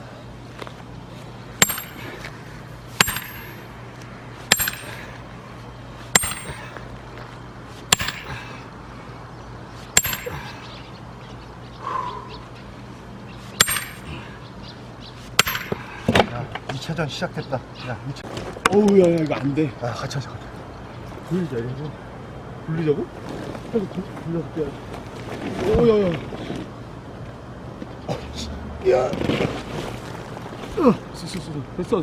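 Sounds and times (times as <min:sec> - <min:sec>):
hammer clanging on steel wedge: 0:01.6 - 0:02.4, 0:03.0 - 0:03.8, 0:04.5 - 0:05.2, 0:06.1 - 0:06.9, 0:07.9 - 0:08.7, 0:10.0 - 0:10.8, 0:13.6 - 0:14.4, 0:15.4 - 0:15.9.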